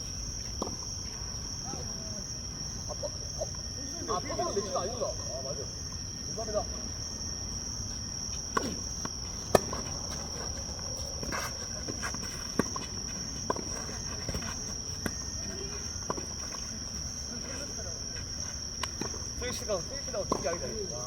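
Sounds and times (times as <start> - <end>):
insects droning: 0.0 - 21.0
tennis balls struck and bouncing: 8.4 - 16.4.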